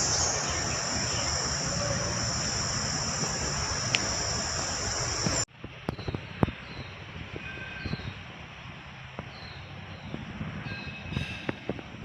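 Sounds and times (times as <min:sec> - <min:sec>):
background hiss: 0:00.0 - 0:05.5
insects chirring: 0:00.0 - 0:05.5.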